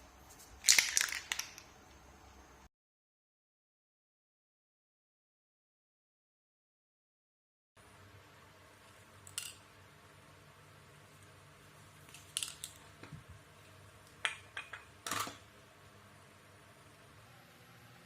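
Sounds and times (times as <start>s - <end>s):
faint steady hum: 0.0s - 2.7s, 7.8s - 18.0s
small hard parts clicking: 0.6s - 1.7s.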